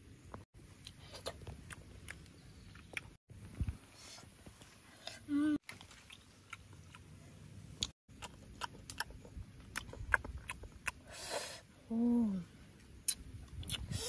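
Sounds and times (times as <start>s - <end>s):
boy chewing with lip smacks: 0.8s - 3.2s, 7.8s - 11.0s, 13.0s - 14.0s.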